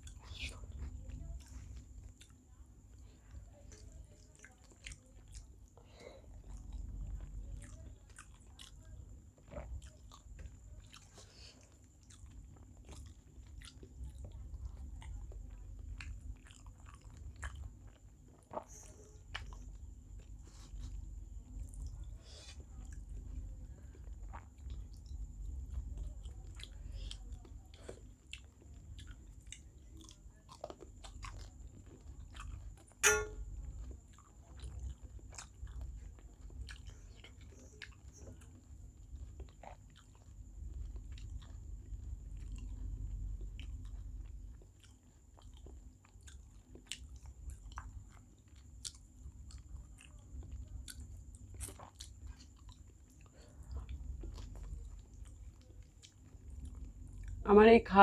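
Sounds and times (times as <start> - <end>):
person chewing food: 0.0 - 57.4
sharp ringing clink: 33.0 - 33.5.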